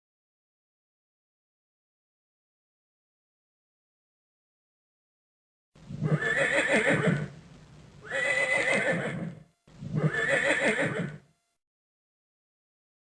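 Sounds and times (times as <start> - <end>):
horse whinnying: 5.9 - 7.3, 8.0 - 11.2.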